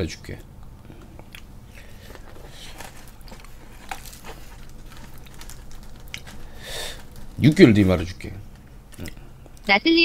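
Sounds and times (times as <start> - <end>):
small crunches and clicks: 0.4 - 9.7
quiet chewing: 0.6 - 7.4, 8.5 - 9.7.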